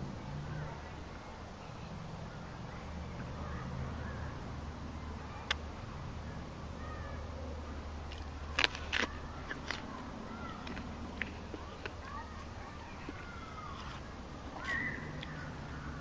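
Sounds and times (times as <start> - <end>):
low steady hum: 0.0 - 16.0
deer crunching an apple: 8.1 - 12.0.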